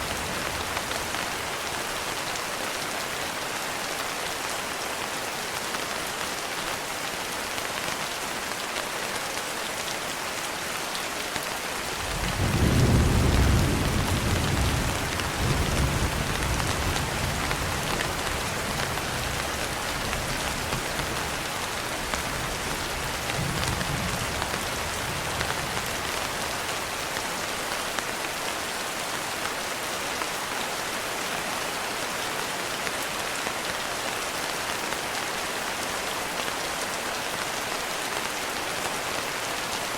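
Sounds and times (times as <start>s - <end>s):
steady rain falling: 0.0s - 39.9s
thunder rumbling: 12.0s - 18.2s.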